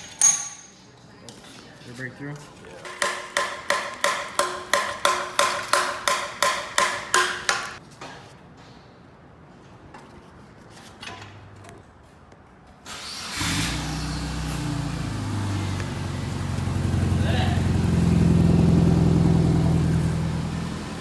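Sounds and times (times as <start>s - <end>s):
hammer striking metal: 0.0s - 0.8s, 2.9s - 7.8s
car engine idling: 13.7s - 21.0s.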